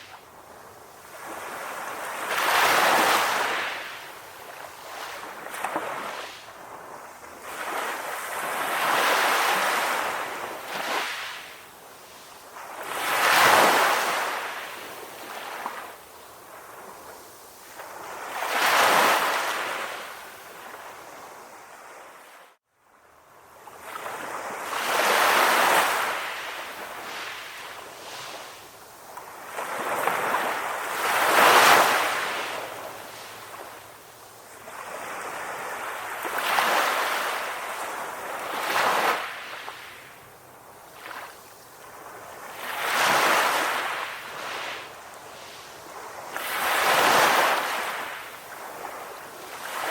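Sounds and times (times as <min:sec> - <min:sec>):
sea waves breaking on beach: 0:00.9 - 0:21.1, 0:23.8 - 0:49.9.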